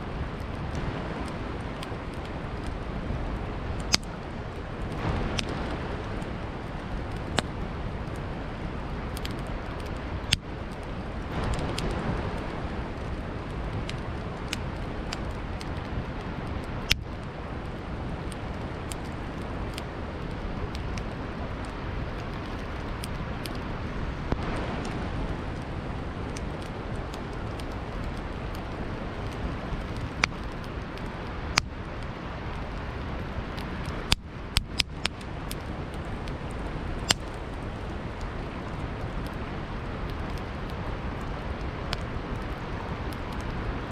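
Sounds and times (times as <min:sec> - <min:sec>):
campfire crackling: 0:00.0 - 0:43.9
river flowing: 0:00.0 - 0:43.9
sharp pops of fire: 0:00.3 - 0:43.9.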